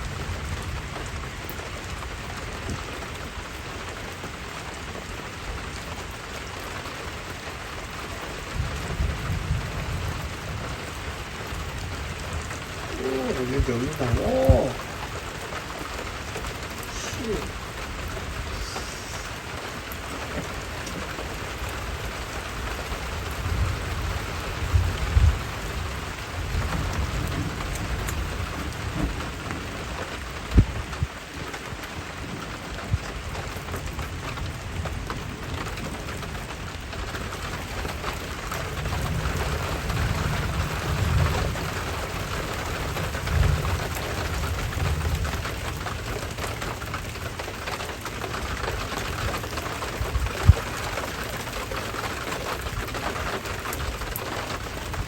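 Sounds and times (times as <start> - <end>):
steady rain falling: 0.0 - 55.0
thunder rumbling: 8.6 - 31.0.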